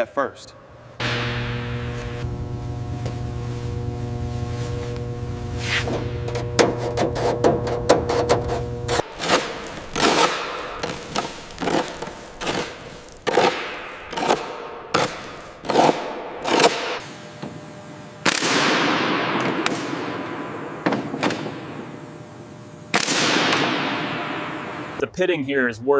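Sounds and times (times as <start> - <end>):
sharp bangs with ringing tail: 1.0 - 3.0.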